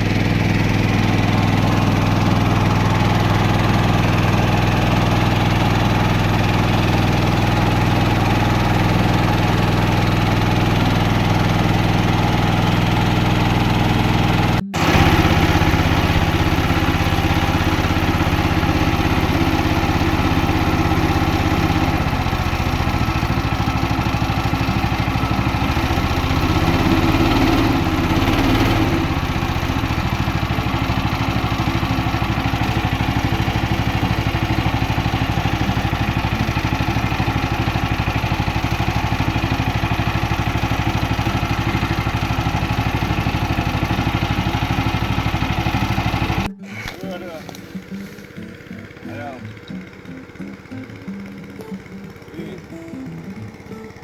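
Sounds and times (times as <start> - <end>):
small boat engine running: 0.0 - 54.0.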